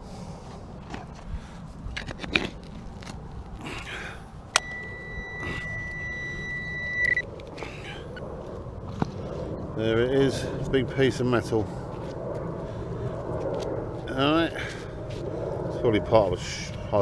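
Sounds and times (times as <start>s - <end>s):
metal detector high tone: 4.6s - 7.2s.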